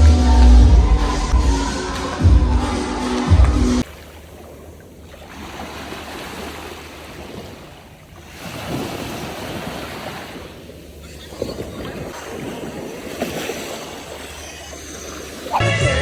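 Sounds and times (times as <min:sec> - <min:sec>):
rushing water: 0:00.0 - 0:16.0
wind buffeting microphone: 0:08.3 - 0:14.2.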